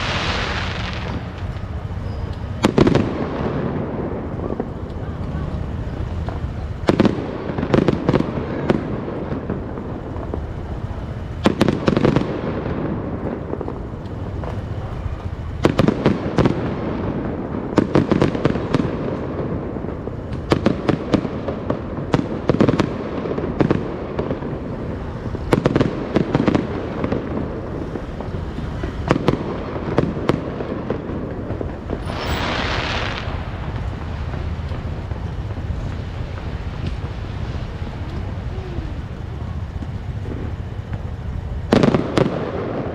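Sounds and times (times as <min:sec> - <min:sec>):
hissing rush: 0:00.0 - 0:02.6
background rumble: 0:00.0 - 0:42.9
fireworks bangs: 0:00.0 - 0:42.9.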